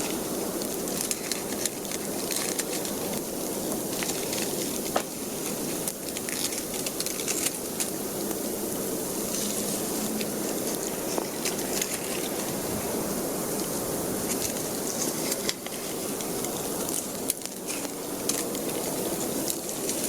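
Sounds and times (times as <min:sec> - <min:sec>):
campfire crackling and popping: 0:00.0 - 0:08.4.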